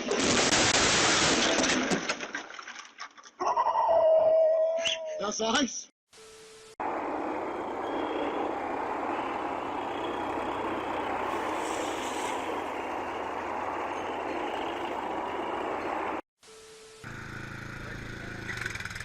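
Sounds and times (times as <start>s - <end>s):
vehicle driving noise: 6.8s - 16.2s.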